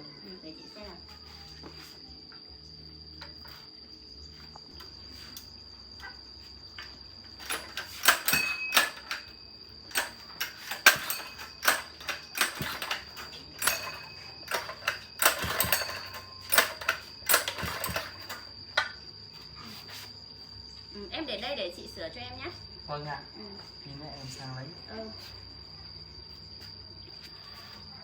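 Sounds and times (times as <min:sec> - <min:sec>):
metal tools clicking and knocking: 0:07.4 - 0:09.3, 0:09.9 - 0:19.0.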